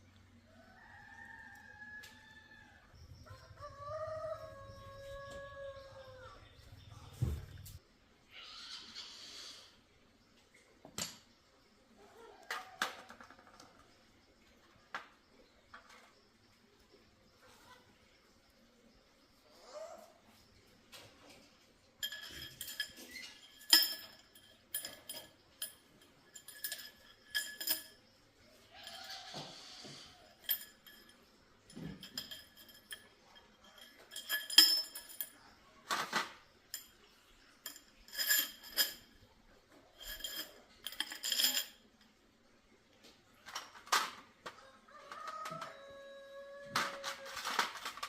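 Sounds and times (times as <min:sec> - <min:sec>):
metal tools clinking: 0:22.0 - 0:42.1, 0:46.7 - 0:48.0.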